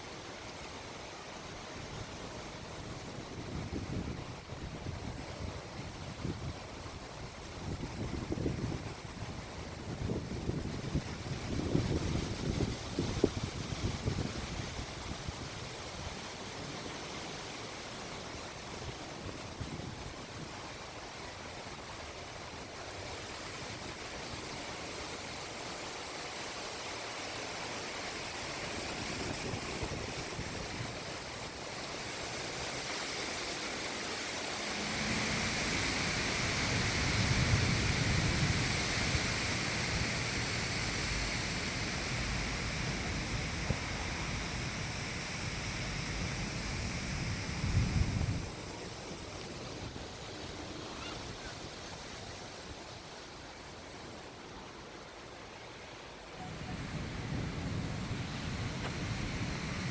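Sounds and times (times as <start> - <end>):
wind buffeting microphone: 2.1 - 16.2, 28.6 - 31.2, 34.3 - 52.5, 56.4 - 59.9
storm wind rushing: 34.3 - 50.2.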